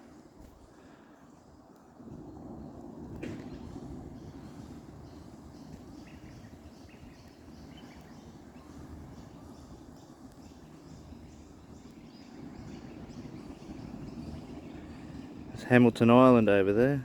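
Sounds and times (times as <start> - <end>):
low steady rumble: 0.0 - 17.0
lower bird chirps: 3.5 - 16.3
high bird calls: 4.1 - 15.8.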